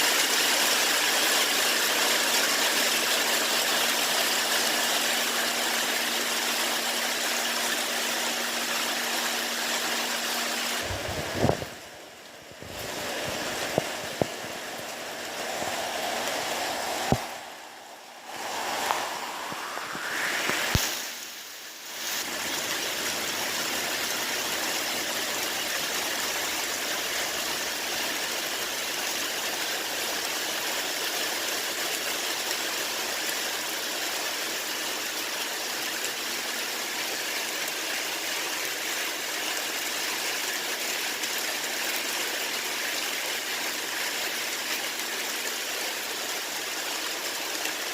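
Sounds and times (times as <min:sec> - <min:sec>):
steady rain hiss: 0:00.0 - 0:47.9
rising whoosh: 0:10.8 - 0:22.2.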